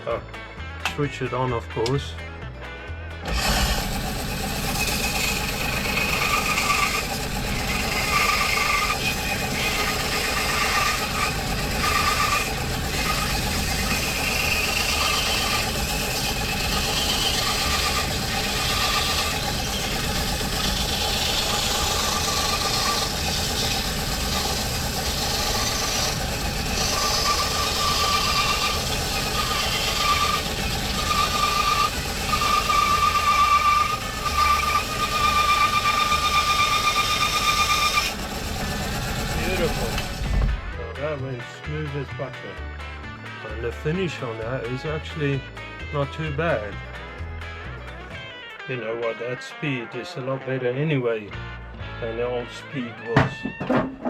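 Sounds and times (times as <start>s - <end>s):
bandsaw cutting timber: 3.2s - 41.0s
bandsaw whine: 3.2s - 41.0s.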